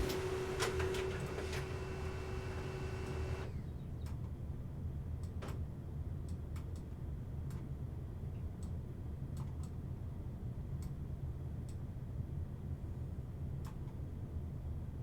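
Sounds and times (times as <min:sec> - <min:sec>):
steady low hum: 0:00.0 - 0:03.5.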